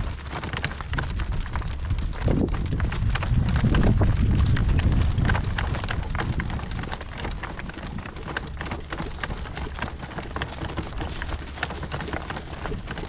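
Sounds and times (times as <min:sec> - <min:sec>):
horse rig crackling and rattling: 0:00.0 - 0:13.0
low rumble: 0:01.2 - 0:07.7.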